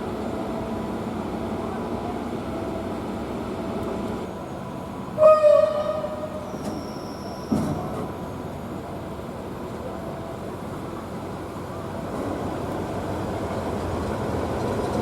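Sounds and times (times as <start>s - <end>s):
train rumbling on track: 0.0s - 15.0s
thin high squeal: 6.4s - 7.5s.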